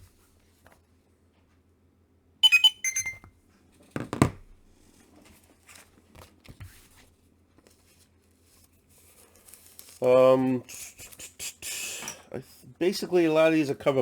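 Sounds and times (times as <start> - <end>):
short high electronic beeps: 2.4 - 3.2.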